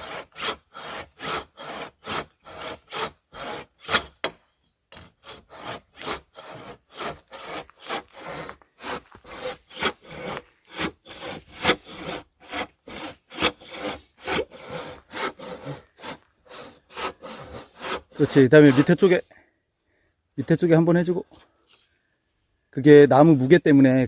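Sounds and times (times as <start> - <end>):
hand saw cutting log: 0.0 - 19.2.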